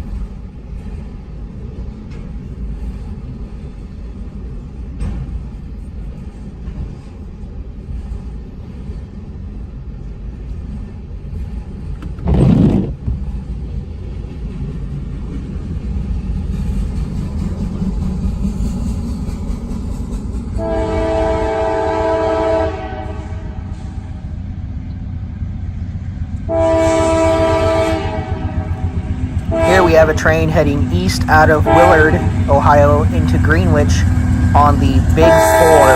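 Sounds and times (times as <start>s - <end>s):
freight train rumbling: 0.0s - 35.9s
locomotive air horn: 20.6s - 23.6s, 26.5s - 28.7s, 29.5s - 30.0s, 31.6s - 32.3s, 35.0s - 35.9s.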